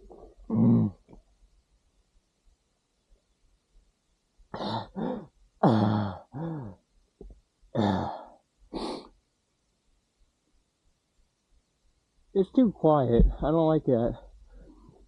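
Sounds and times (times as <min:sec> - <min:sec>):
man groaning: 0:00.5 - 0:01.0, 0:04.6 - 0:06.8
man clearing throat: 0:00.5 - 0:01.1, 0:04.6 - 0:06.8, 0:07.8 - 0:08.3
man coughing: 0:04.6 - 0:06.7.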